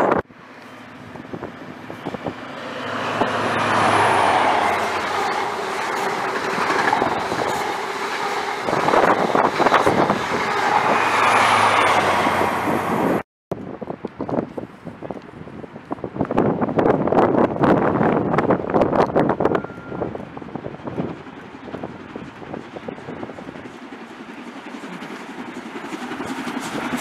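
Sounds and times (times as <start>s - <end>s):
diesel engine drone: 0.0s - 13.2s
coaches clattering over rail joints: 2.0s - 11.0s.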